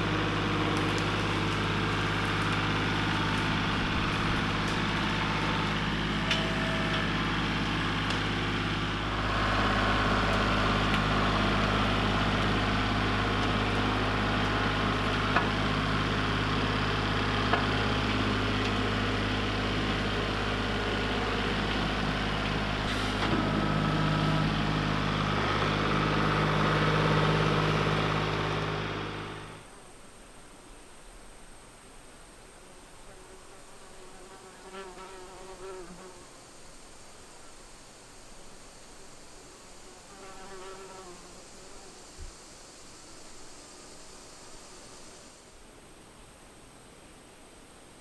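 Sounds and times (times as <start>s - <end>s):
vehicle engine hum: 0.0s - 30.0s.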